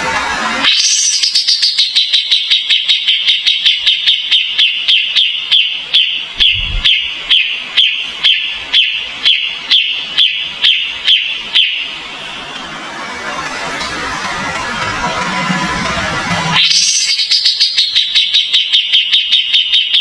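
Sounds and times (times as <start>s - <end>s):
songbird calling sharp notes: 0.7s - 12.0s, 16.6s - 20.0s.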